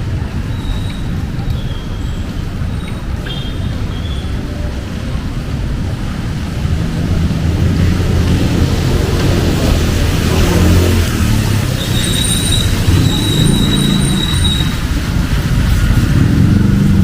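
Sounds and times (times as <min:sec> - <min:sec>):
road traffic rumble: 0:00.0 - 0:17.0
vehicle engine hum approaching: 0:03.8 - 0:17.0.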